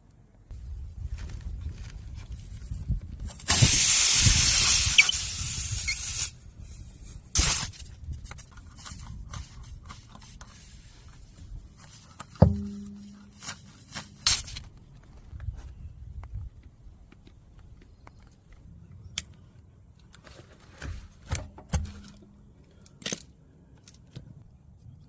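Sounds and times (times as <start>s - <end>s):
pressurised air hissing: 3.4s - 7.9s
sharp knock with ringing tone: 12.4s - 13.3s.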